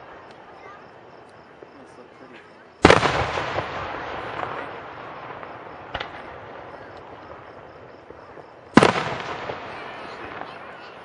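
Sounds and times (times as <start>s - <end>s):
firework shells bursting: 2.8s - 10.7s.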